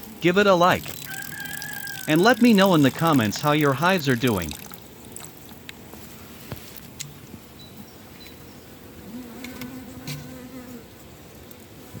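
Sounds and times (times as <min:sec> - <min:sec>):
bees buzzing around hive: 0:00.0 - 0:05.5, 0:08.8 - 0:11.0
bee buzzing close: 0:09.0 - 0:10.9.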